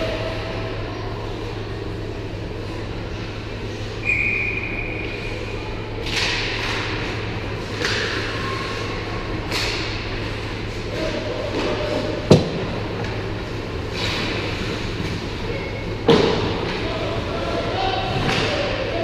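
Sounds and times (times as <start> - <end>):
steady low hum: 0.0 - 19.0
referee's whistle: 4.0 - 5.2.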